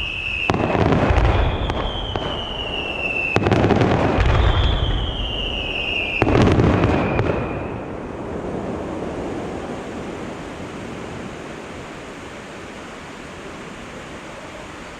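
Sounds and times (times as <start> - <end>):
firework whistle falling in pitch: 0.0 - 8.0
firework bang: 0.0 - 10.6
steady hiss: 0.0 - 14.9.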